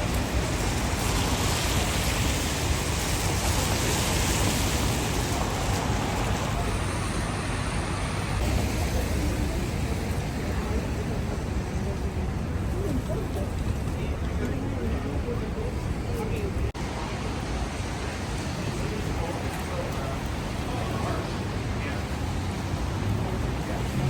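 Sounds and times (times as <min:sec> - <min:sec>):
rain hissing: 0:00.0 - 0:13.9
traffic on wet road: 0:00.0 - 0:24.0.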